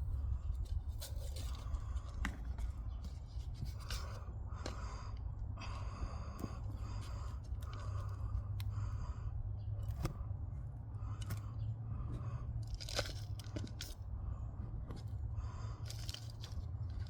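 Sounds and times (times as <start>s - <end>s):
hands scraping and rustling soil: 0.0s - 9.0s, 9.8s - 17.0s
low steady rumble: 0.0s - 17.0s.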